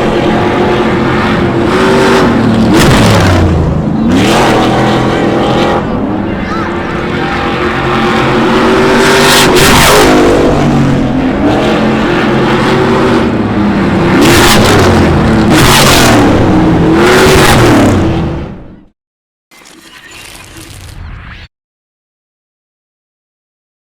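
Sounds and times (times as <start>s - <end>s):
trucks rushing past: 0.0s - 18.8s
race truck engines revving: 0.0s - 18.9s.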